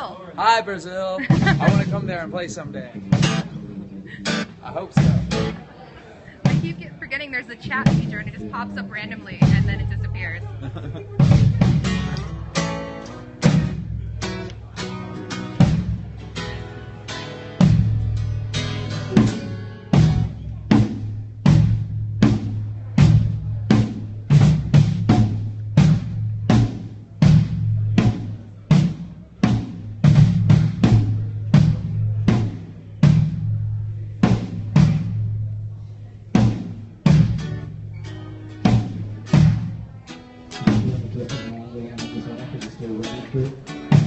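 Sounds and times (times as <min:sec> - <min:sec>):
drum kit strikes ringing out: 0:03.0 - 0:03.6, 0:11.1 - 0:35.6, 0:40.5 - 0:41.5.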